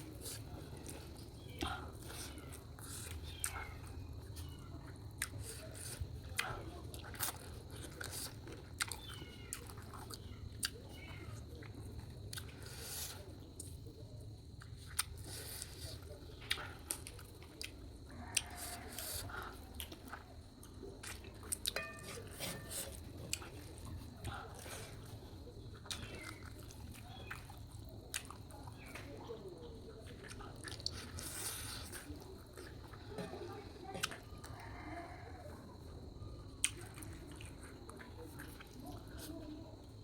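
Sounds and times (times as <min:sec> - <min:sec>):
chewing food: 0:00.0 - 0:40.0.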